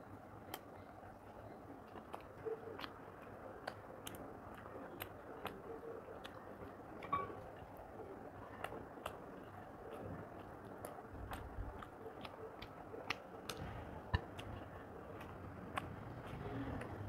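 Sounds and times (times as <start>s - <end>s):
faint chewing: 0.0s - 17.0s
sharp mouth clicks: 0.4s - 0.9s, 8.6s - 17.0s.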